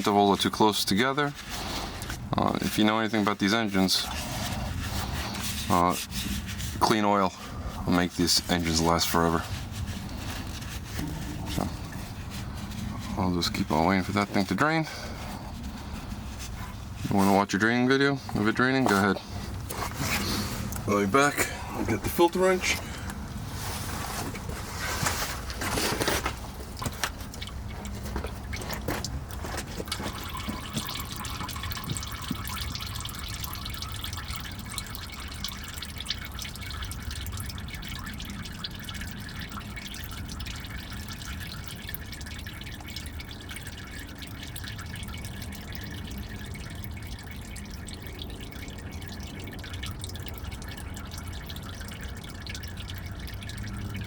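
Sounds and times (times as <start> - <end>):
oil trickling into a pan: 0.0 - 54.0
knocks and rustles: 23.6 - 31.0.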